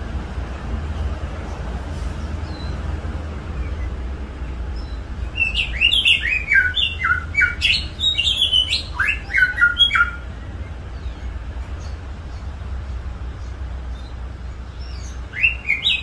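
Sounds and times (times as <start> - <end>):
low hum and hiss: 0.0 - 15.7
songbird whistling notes: 4.8 - 10.3, 14.8 - 16.0.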